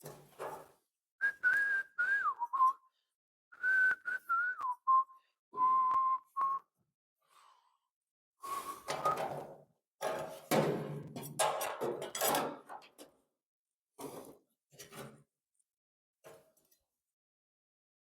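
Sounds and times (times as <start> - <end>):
person whistling a tune: 1.2 - 2.9, 3.5 - 6.7, 8.4 - 9.3.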